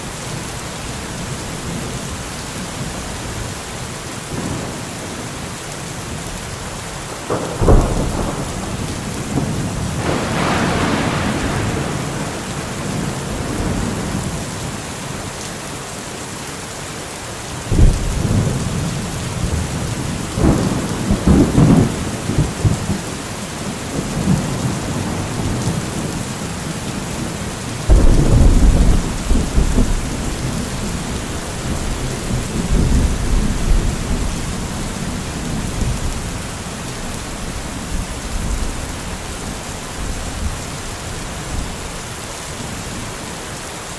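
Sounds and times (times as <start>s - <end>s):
steady rain: 0.0s - 43.9s
thunder rumbling: 7.0s - 14.8s, 17.7s - 41.8s.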